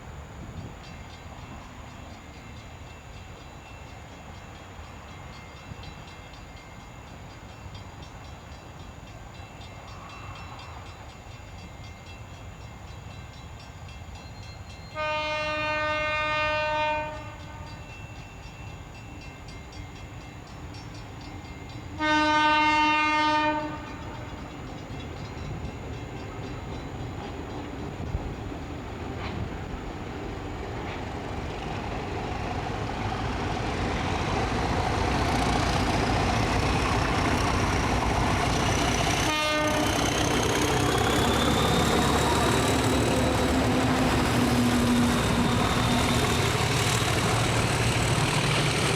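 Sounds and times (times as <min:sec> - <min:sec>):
train rumble: 0:00.0 - 0:48.9
train horn blasts: 0:14.9 - 0:17.9, 0:22.0 - 0:24.4, 0:37.4 - 0:48.5.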